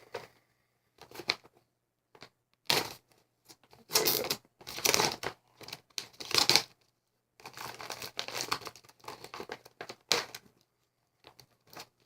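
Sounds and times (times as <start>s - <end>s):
plastic pouch crinkling and tearing: 3.7s - 6.8s, 7.4s - 10.4s.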